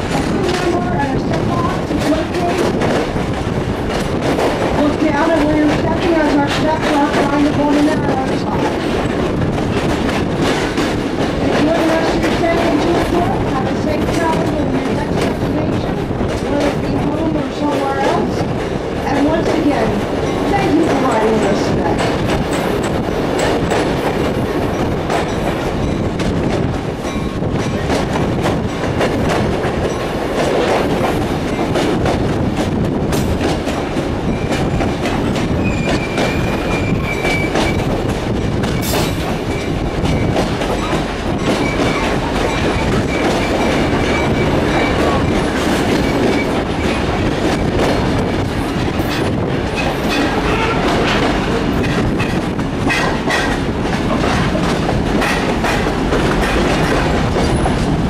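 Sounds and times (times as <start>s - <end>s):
train wheels rumbling on track: 0.0s - 58.0s
wheel clacks: 0.0s - 58.0s.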